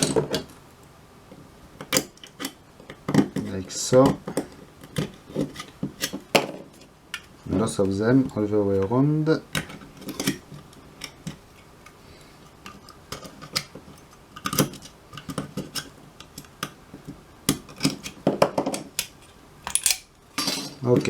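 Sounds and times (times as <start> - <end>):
tool prying metal cover clicks: 14.4 - 16.8, 17.5 - 20.8.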